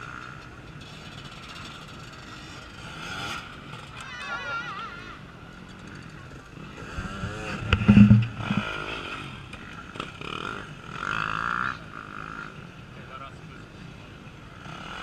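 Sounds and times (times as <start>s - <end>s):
motorcycle engine revving: 0.0s - 4.0s, 5.7s - 12.6s
knocks and clatter: 7.2s - 8.7s.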